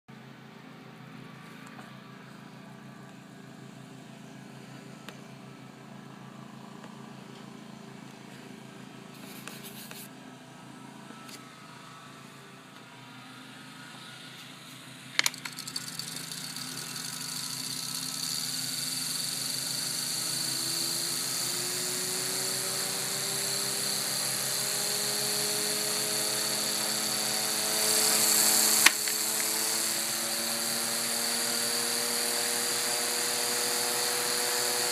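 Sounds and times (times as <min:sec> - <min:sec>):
fan motor humming: 0:13.4 - 0:34.9.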